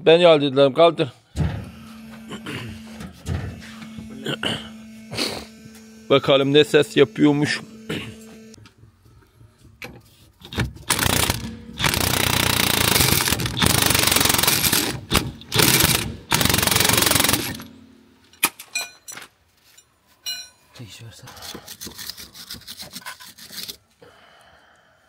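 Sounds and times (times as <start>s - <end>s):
loud rapid mechanical rattling: 10.5s - 17.9s.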